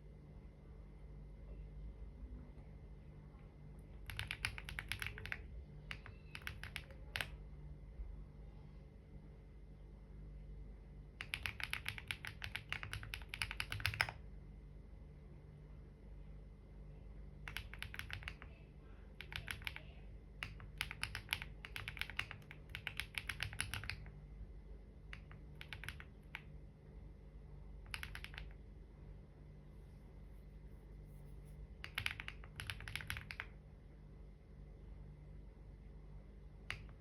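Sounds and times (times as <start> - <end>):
typing on computer keyboard: 3.9 - 7.4, 11.2 - 14.2, 17.4 - 18.6, 19.2 - 24.1, 25.1 - 26.6, 27.8 - 28.6, 31.8 - 33.6, 36.6 - 37.0.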